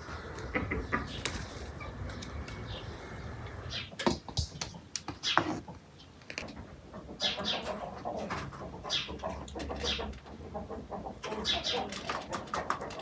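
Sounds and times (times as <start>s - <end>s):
small birds chirping: 0.0s - 6.4s, 7.1s - 8.2s, 8.8s - 12.4s.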